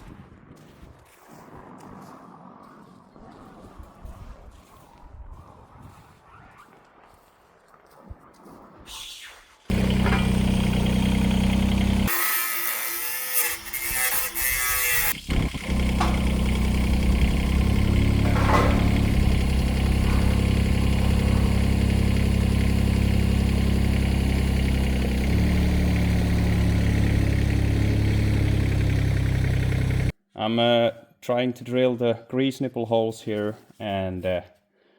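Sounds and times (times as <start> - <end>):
engine idling: 9.7 - 12.1, 15.1 - 30.1
loud high noisy sound: 9.8 - 11.8, 15.2 - 23.1.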